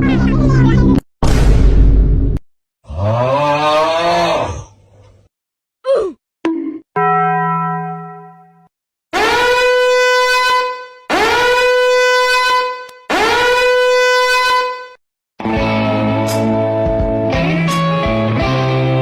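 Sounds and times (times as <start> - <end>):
horn blasts: 9.2 - 15.0.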